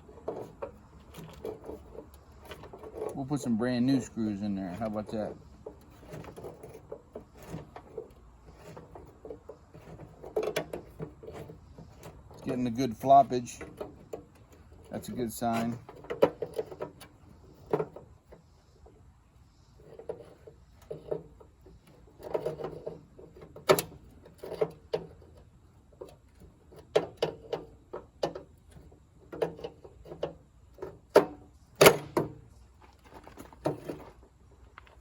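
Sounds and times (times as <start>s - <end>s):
hand tools clinking and knocking: 0.0s - 18.4s.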